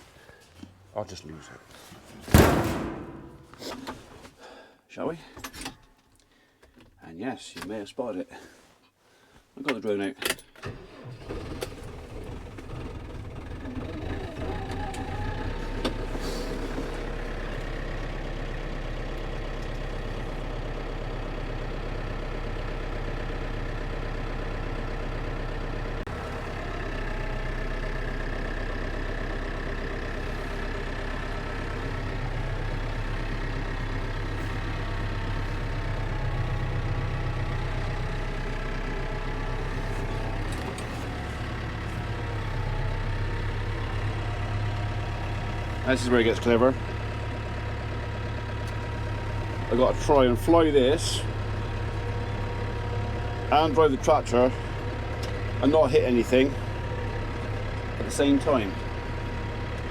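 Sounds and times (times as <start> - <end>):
tractor diesel engine running: 2.4 - 4.6, 10.6 - 59.9.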